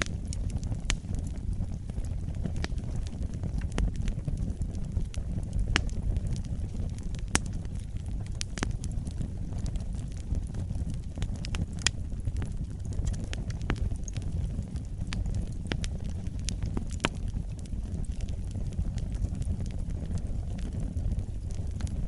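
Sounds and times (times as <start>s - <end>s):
fire low rumble: 0.0s - 22.0s
wood fire crackling and popping: 0.0s - 22.0s.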